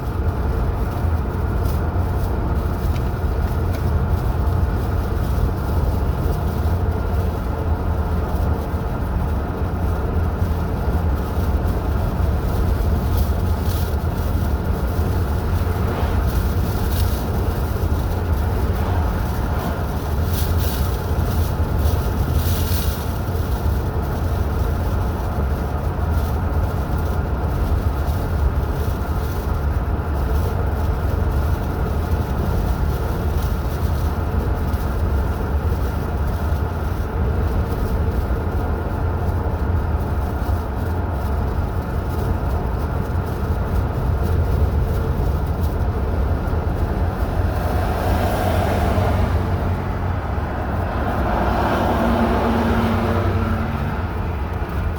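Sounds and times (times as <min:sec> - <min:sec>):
car road and engine rumble: 0:00.0 - 0:54.9.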